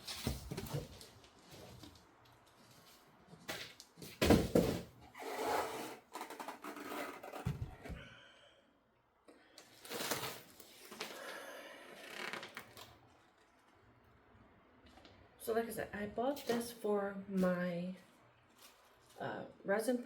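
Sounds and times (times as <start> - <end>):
cardboard rustling and scraping: 0.0 - 8.0.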